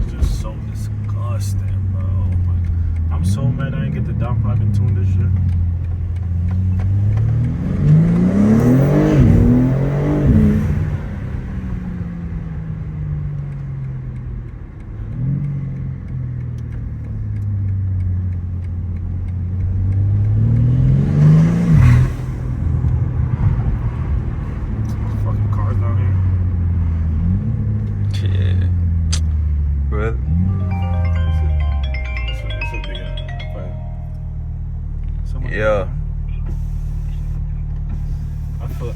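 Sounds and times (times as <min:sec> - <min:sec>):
car engine accelerating hard: 0:00.0 - 0:30.5.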